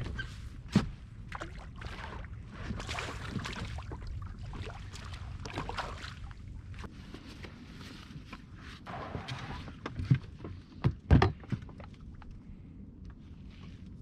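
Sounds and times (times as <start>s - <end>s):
water slapping inflatable boat: 0.0s - 7.6s.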